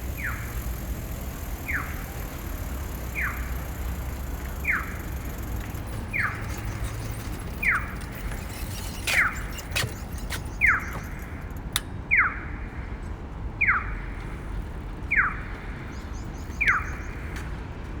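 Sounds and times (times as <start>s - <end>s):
crossing signal chirping: 0.0s - 11.4s
street noise: 0.0s - 18.0s.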